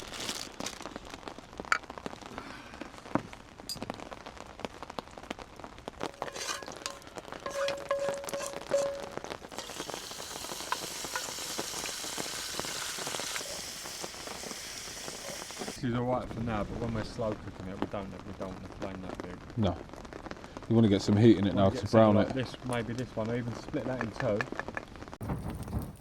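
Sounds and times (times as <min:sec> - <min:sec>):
campfire crackling: 0:00.0 - 0:26.0
sizzling hiss: 0:05.2 - 0:19.4
water dripping: 0:06.0 - 0:15.8.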